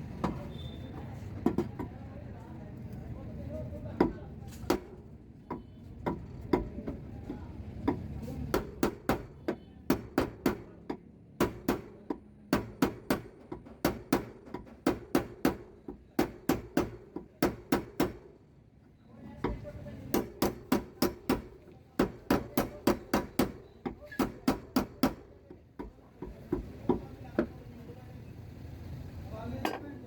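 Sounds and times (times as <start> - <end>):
hammer tapping sheet metal: 19.5 - 27.1.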